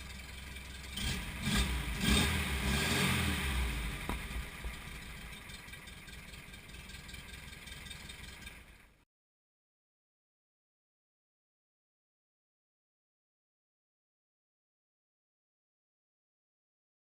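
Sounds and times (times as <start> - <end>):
car engine running: 0.0 - 9.0.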